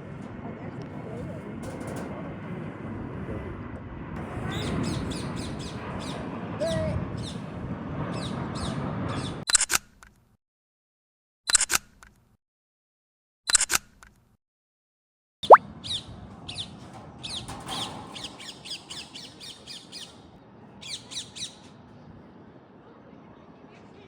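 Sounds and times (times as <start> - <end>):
outdoor background hum: 0.0 - 10.1, 15.5 - 24.0
birds chirping: 4.4 - 6.3, 15.4 - 22.2.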